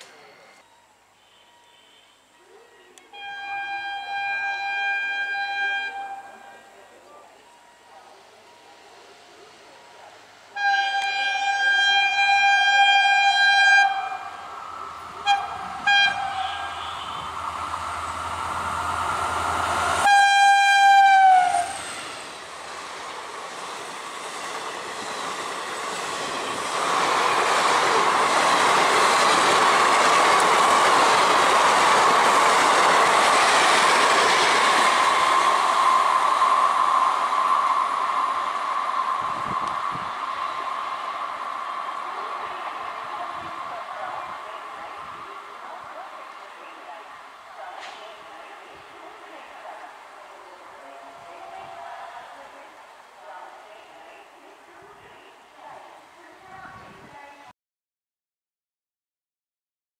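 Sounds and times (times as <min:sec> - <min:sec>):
coaches rushing on rails: 0:00.0 - 0:57.4
locomotive horn blasts: 0:01.2 - 0:02.3, 0:03.1 - 0:06.6, 0:10.6 - 0:14.4, 0:15.1 - 0:17.7, 0:19.9 - 0:21.8.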